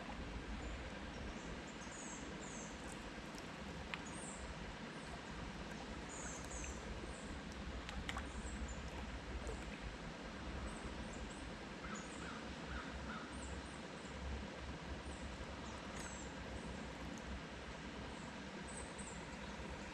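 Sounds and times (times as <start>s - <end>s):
small birds chirping: 6.1s - 7.3s.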